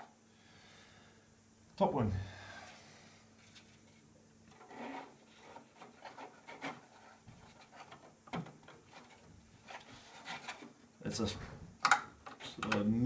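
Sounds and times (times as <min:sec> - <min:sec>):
plastic parts rubbing and clicking: 0:04.5 - 0:10.8, 0:11.8 - 0:12.9.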